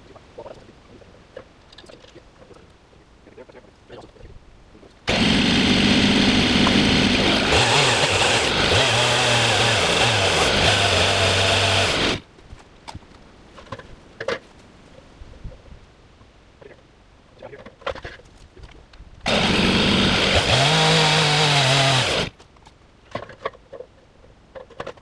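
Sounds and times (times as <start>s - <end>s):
motorised power tool running: 5.1s - 12.2s, 19.3s - 22.3s.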